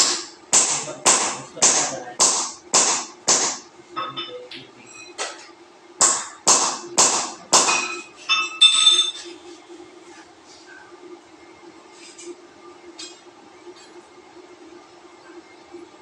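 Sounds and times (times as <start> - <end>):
hammer strikes: 0.0 - 4.3, 6.0 - 9.3
steady low hum: 0.0 - 16.0
ringing metallic clink: 7.8 - 9.3.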